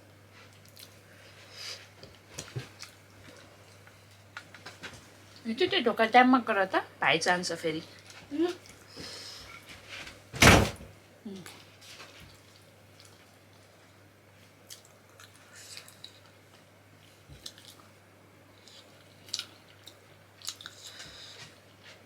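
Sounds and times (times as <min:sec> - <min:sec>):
wet chewing mouth smacks: 0:17.4 - 0:17.9, 0:18.6 - 0:21.0.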